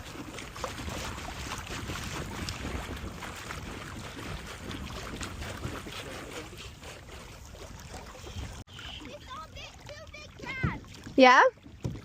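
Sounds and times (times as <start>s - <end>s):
wind buffeting microphone: 0.4s - 7.2s.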